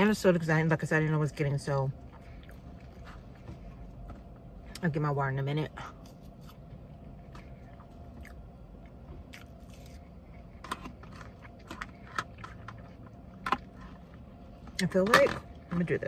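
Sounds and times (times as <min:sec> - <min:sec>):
steady low hum: 0:00.0 - 0:16.0
person chewing food: 0:02.0 - 0:04.5, 0:06.0 - 0:14.6.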